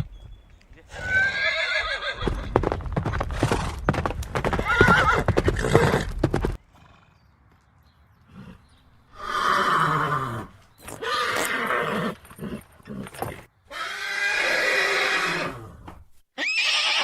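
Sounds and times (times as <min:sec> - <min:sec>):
horse neighing: 0:00.9 - 0:02.5, 0:04.6 - 0:06.1, 0:08.4 - 0:15.8, 0:16.4 - 0:17.0
hooves clip-clopping: 0:02.2 - 0:06.6.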